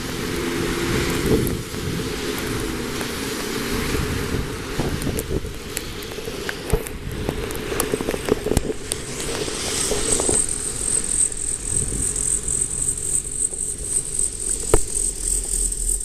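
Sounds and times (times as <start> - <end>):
high-pitched whine: 0.0 - 6.1, 6.9 - 16.0
strong wind buffeting microphone: 0.0 - 14.8.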